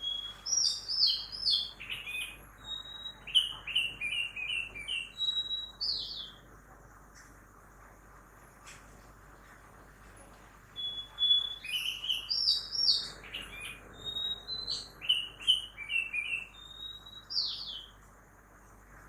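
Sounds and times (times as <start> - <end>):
songbird singing: 0.0 - 6.5, 10.6 - 18.1.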